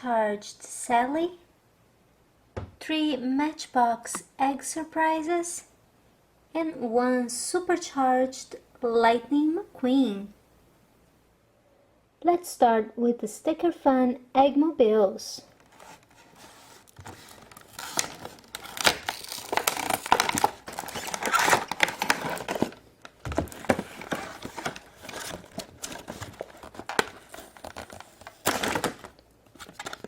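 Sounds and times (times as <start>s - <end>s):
packaging crinkling and tearing: 15.6s - 30.0s.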